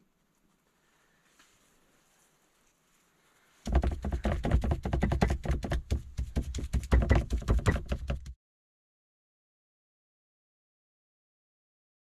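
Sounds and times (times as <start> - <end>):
rapid sharp taps and knocks: 3.6 - 8.4.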